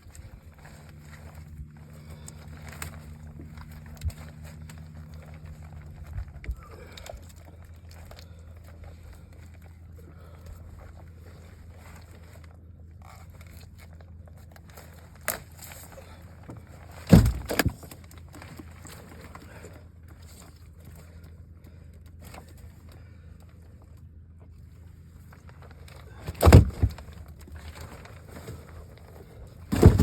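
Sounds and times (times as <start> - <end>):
heavy double thump: 17.1 - 17.8, 26.4 - 27.1, 29.7 - 30.0.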